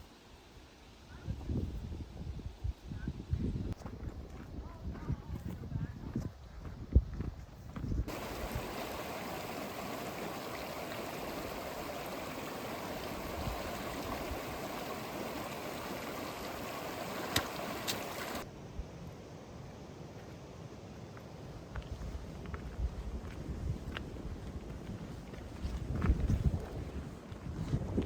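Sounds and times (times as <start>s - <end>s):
stream water rushing: 8.1s - 18.5s.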